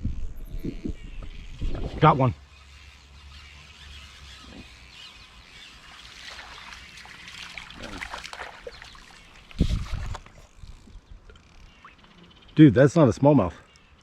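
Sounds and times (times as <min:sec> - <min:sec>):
creek water splashing: 0:04.6 - 0:12.1.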